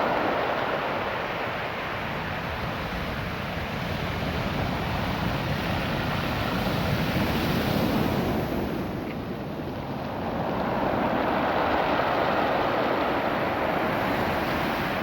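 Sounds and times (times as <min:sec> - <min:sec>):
surf washing over pebble beach: 0:00.0 - 0:15.0.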